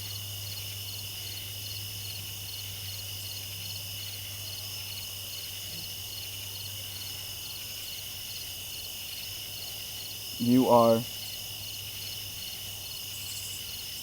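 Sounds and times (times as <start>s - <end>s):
crickets chirping: 0.0s - 14.0s
high insect trill: 0.0s - 14.0s.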